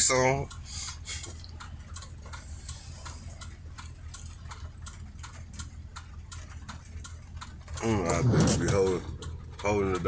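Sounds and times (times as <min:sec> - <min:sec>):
turn signal ticking: 0:00.0 - 0:10.0
car driving drone: 0:07.7 - 0:10.0.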